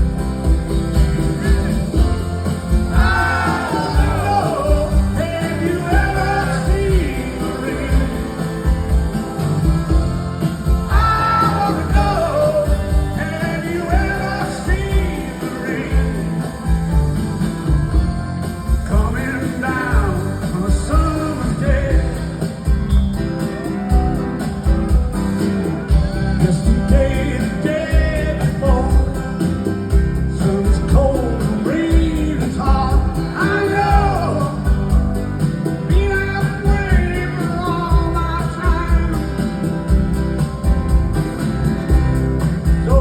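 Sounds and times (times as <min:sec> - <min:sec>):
live rock band playing: 0:00.0 - 0:43.0
man singing lead vocal: 0:02.8 - 0:09.7, 0:10.8 - 0:17.0, 0:18.8 - 0:22.8, 0:26.4 - 0:29.6, 0:30.2 - 0:35.0, 0:35.8 - 0:40.0, 0:42.8 - 0:43.0.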